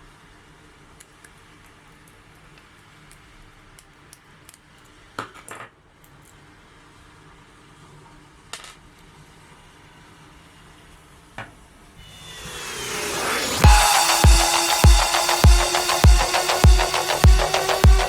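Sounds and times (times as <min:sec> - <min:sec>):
light clicks of small parts: 0:01.0 - 0:06.4.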